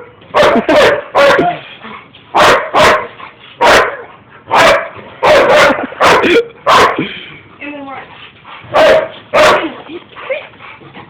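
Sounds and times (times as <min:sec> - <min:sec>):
dog barking loudly: 0:00.0 - 0:01.6, 0:02.3 - 0:07.1, 0:08.7 - 0:09.8.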